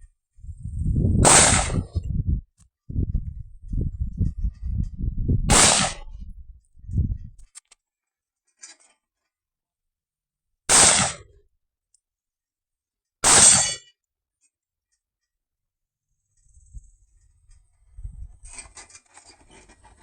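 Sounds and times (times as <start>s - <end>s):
low rumbling thumps: 0.4s - 7.5s
carbine gunshots: 1.2s - 1.8s, 5.5s - 6.1s, 10.7s - 11.3s.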